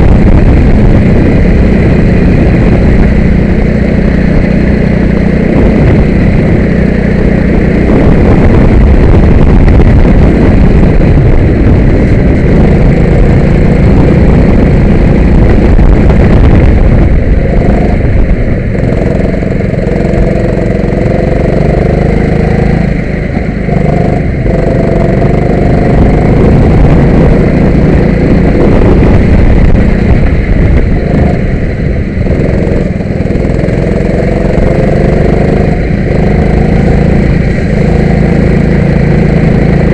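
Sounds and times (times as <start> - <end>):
go-kart engine revving: 17.0 - 39.9.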